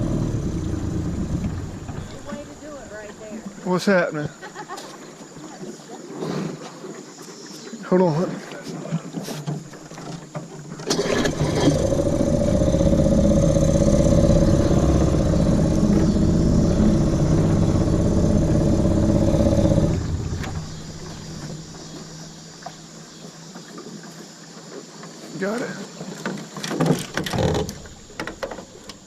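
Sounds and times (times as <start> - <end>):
outboard boat motor running: 0.0 - 3.8, 9.6 - 29.0.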